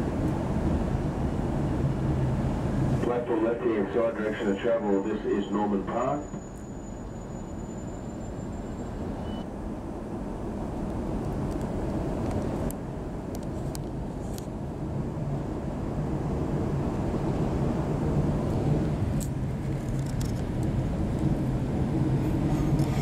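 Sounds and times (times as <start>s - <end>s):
electric train rumbling: 0.0s - 23.0s.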